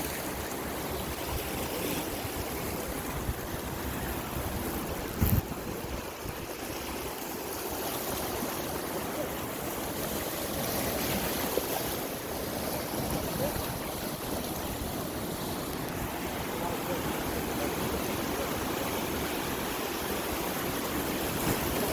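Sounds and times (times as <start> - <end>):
sea water and waves rushing: 0.0 - 21.9.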